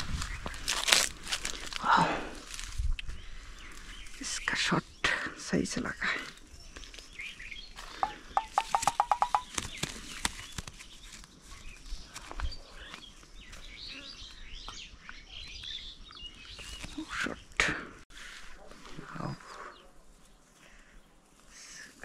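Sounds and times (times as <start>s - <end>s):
bird pulsed call: 6.8s - 9.9s
faint high bird chirps: 7.1s - 9.8s.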